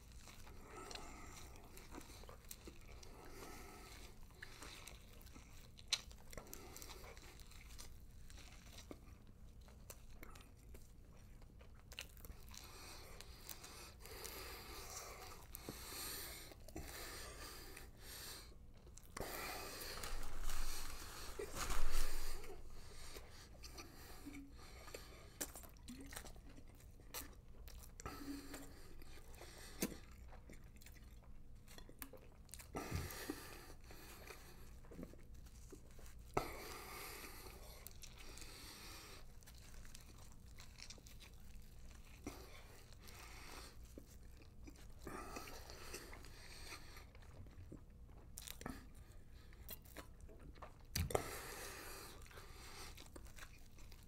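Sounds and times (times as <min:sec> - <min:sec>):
crunching of toasted muffins: 0:00.0 - 0:54.0
man chewing and biting: 0:00.0 - 0:54.0.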